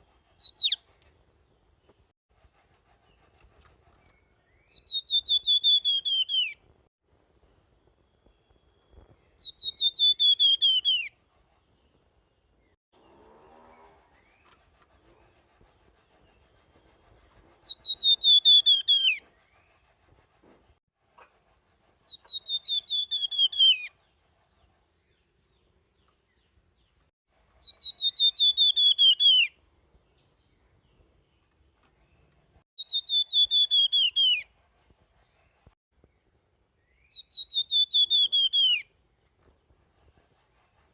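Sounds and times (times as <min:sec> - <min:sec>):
songbird whistling notes: 0:00.4 - 0:00.9, 0:04.0 - 0:06.6, 0:08.4 - 0:11.2, 0:17.6 - 0:19.7, 0:22.1 - 0:24.0, 0:27.6 - 0:29.6, 0:32.8 - 0:34.5, 0:36.8 - 0:38.9.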